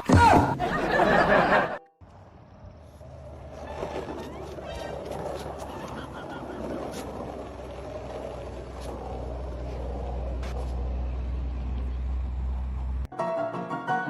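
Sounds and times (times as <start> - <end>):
piano music: 13.1 - 14.0.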